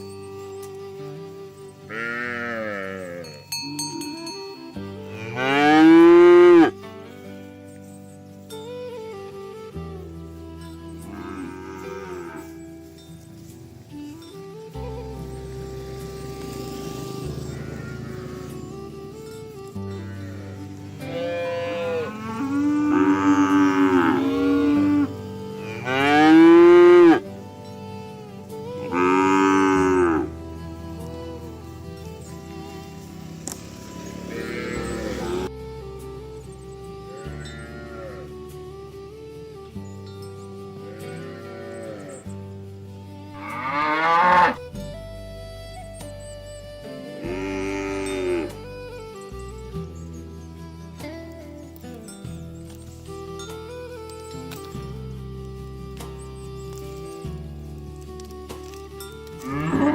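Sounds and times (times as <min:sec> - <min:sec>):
background music: 0:00.0 - 0:59.9
cattle mooing: 0:01.9 - 0:03.3, 0:05.1 - 0:06.7, 0:11.1 - 0:12.5, 0:16.1 - 0:27.2, 0:28.8 - 0:31.6, 0:32.4 - 0:35.5, 0:40.9 - 0:42.2, 0:43.4 - 0:44.6, 0:47.3 - 0:48.6, 0:59.4 - 0:59.9.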